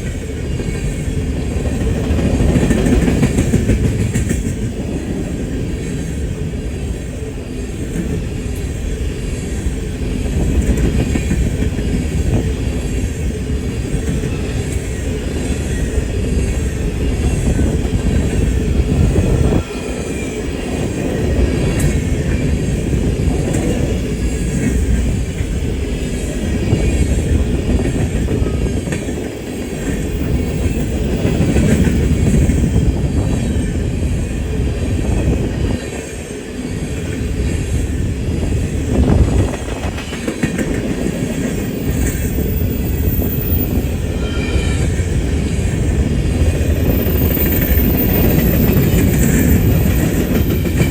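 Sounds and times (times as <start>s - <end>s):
train wheels rumbling on rail: 0.0s - 50.9s
wheels clacking over rail joints: 39.0s - 43.8s
wheel squeal: 41.6s - 45.8s, 46.8s - 50.9s.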